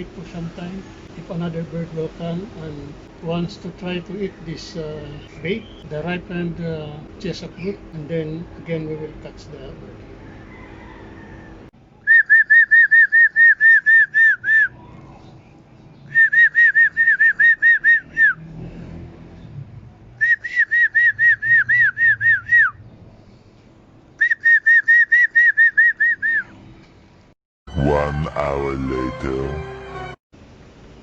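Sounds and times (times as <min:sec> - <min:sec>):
loud whistled call: 0:12.0 - 0:14.8, 0:16.1 - 0:18.4, 0:20.2 - 0:22.8, 0:24.2 - 0:26.5.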